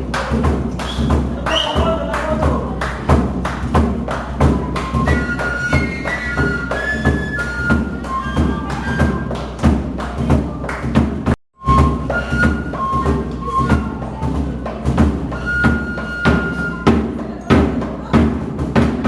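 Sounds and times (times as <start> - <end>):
steady drum beats: 0.0 - 19.0
flute-like melody: 4.4 - 9.6, 11.6 - 17.1.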